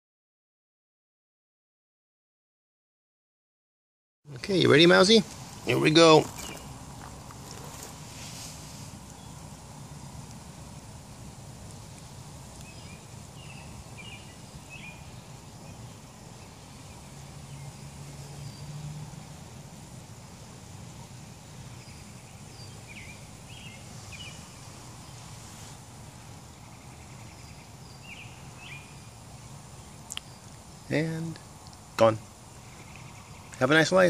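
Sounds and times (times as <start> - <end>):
small bird chirping: 5.6 - 8.0, 8.9 - 9.6, 11.6 - 19.3, 21.6 - 34.0.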